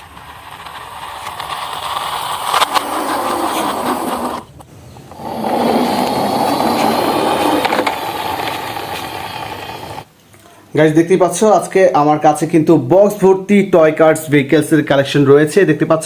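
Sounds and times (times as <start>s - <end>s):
toy car wheels whirring: 0.0s - 10.1s.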